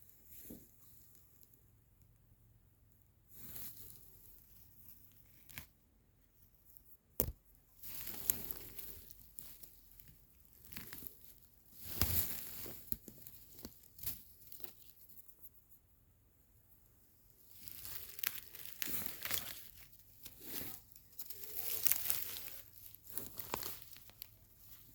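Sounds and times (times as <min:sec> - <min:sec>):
rustling and tearing: 0:07.2 - 0:15.8, 0:17.4 - 0:24.9.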